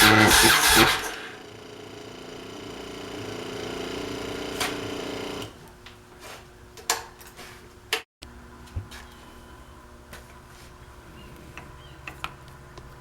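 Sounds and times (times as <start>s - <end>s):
motorcycle engine running: 0.0s - 5.5s.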